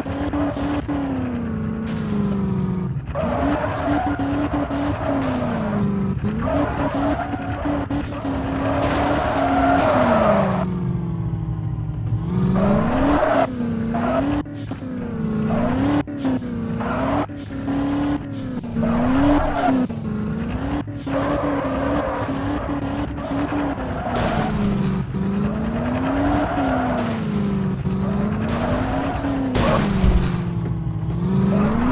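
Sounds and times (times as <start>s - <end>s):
race car engine revving: 0.0s - 31.9s
tyre squeal: 15.3s - 30.0s.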